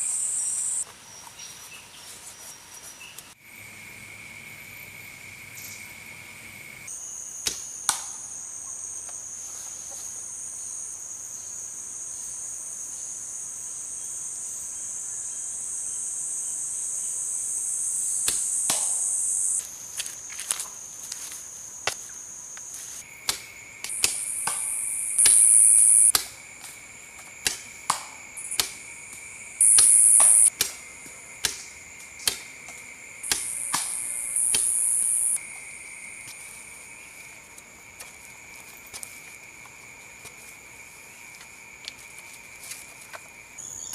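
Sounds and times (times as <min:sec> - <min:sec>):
insect chirring: 0:00.0 - 0:01.2, 0:03.4 - 0:43.9
loud buzzing bursts: 0:29.6 - 0:30.5.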